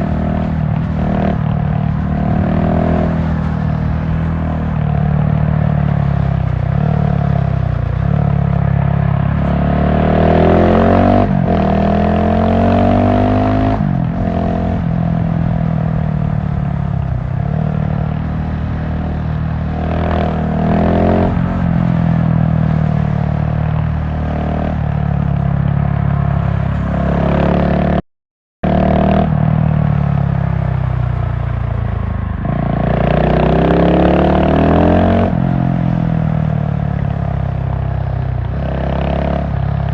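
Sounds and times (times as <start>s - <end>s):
motorcycle engine revving: 0.0s - 28.0s, 28.6s - 39.9s.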